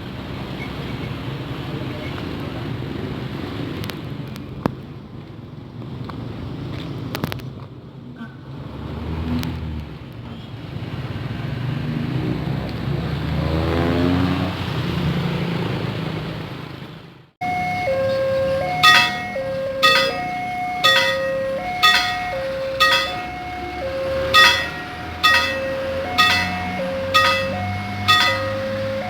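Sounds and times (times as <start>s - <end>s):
road traffic passing: 8.4s - 29.0s
level crossing warning bell: 17.4s - 29.0s.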